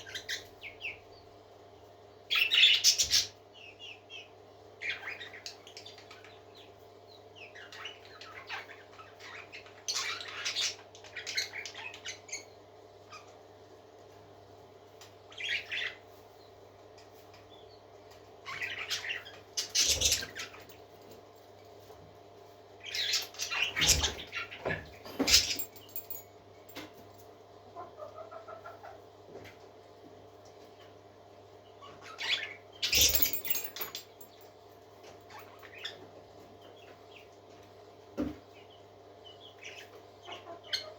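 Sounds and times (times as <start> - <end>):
parakeets chirping and chattering: 0.0 - 1.2, 2.3 - 13.4, 15.0 - 16.1, 17.4 - 21.2, 22.8 - 26.2, 31.6 - 34.4, 35.1 - 37.3, 38.2 - 40.9.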